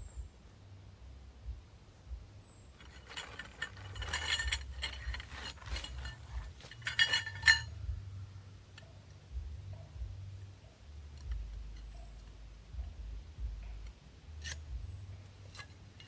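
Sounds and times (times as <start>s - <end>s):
metal or glass objects clinking: 2.8s - 7.9s.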